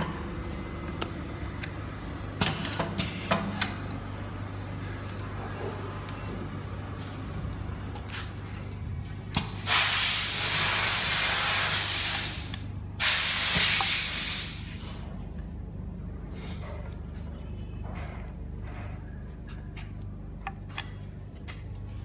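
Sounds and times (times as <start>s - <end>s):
wrapping machine humming: 0.0s - 11.1s.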